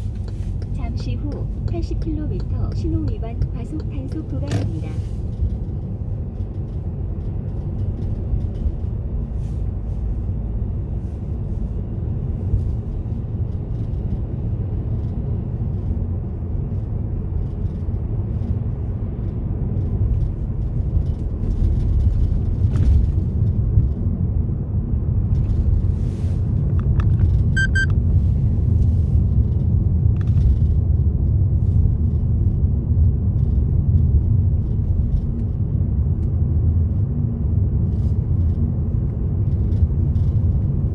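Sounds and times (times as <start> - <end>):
car engine and tyre rumble: 0.0 - 40.9
quick high beeps: 27.6 - 27.9.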